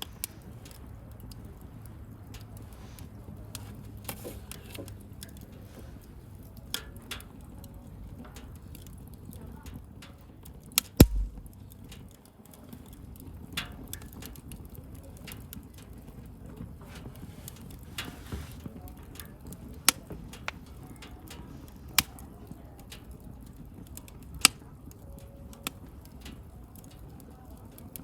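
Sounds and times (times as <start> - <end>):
bonfire crackling and popping: 0.0 - 28.0.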